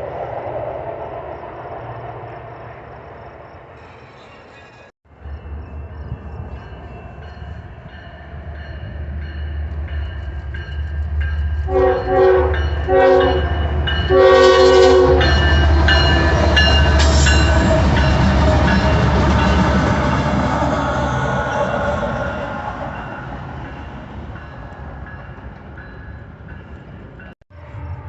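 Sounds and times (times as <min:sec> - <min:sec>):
diesel locomotive engine rumble: 0:00.0 - 0:28.0
train air horn blasts: 0:11.7 - 0:18.0.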